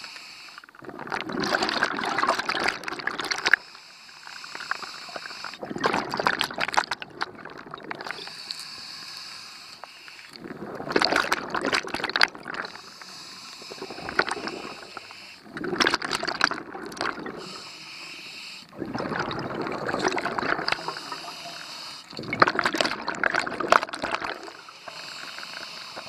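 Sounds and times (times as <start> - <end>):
regulator hissing on inhale: 0.0 - 0.7, 3.5 - 5.6, 8.1 - 10.4, 12.6 - 15.5, 17.3 - 18.8, 20.6 - 22.2, 24.4 - 26.0
bubbles rushing: 0.8 - 3.6, 5.6 - 8.2, 10.4 - 12.8, 13.6 - 17.6, 18.7 - 21.2, 22.1 - 24.6.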